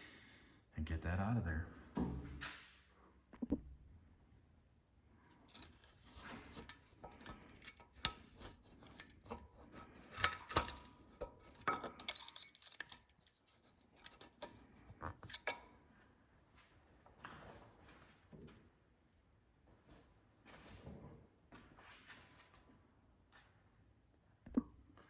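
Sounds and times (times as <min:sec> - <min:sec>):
metal tools clicking and scraping: 0:05.4 - 0:15.6.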